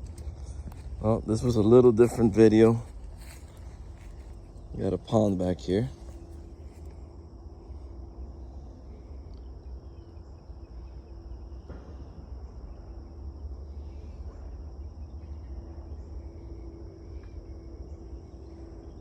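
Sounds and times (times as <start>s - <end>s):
low rumble: 0.0s - 9.4s
faint steady hum: 0.0s - 19.0s
insects chirring: 0.0s - 19.0s.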